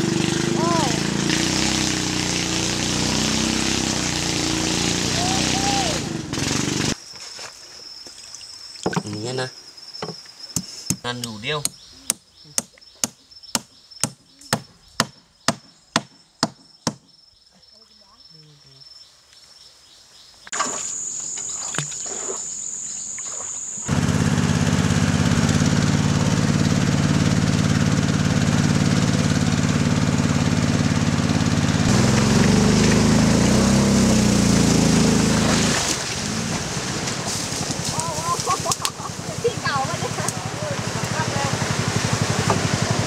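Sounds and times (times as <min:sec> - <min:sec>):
boat engine running: 0:00.0 - 0:07.0, 0:23.2 - 0:43.0
high insect buzz: 0:18.5 - 0:23.9.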